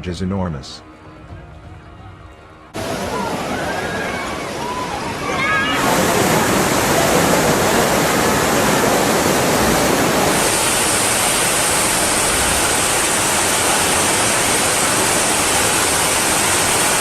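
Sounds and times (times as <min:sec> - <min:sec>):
water rushing: 0:02.8 - 0:17.0
sharp high hiss: 0:10.2 - 0:17.0.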